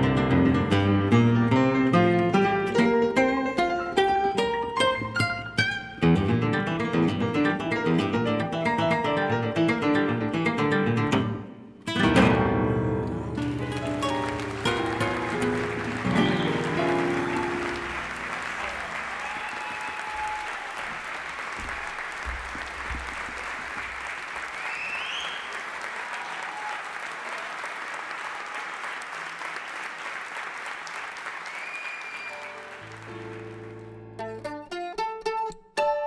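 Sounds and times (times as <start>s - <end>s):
plucked string notes: 0.0s - 18.2s, 33.2s - 36.0s
audience applauding: 13.2s - 34.1s
crowd whistling: 14.3s - 22.4s, 24.4s - 27.5s, 31.3s - 33.3s.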